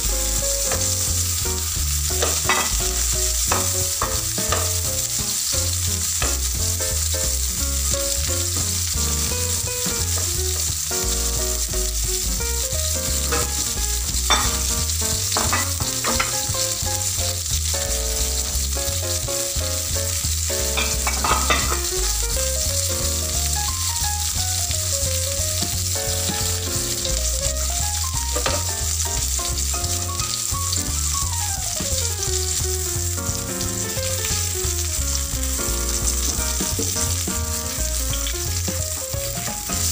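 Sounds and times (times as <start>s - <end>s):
fish sizzling in a grill pan: 0.0s - 39.9s
tongs clicking on pan: 3.5s - 4.9s, 20.8s - 21.9s.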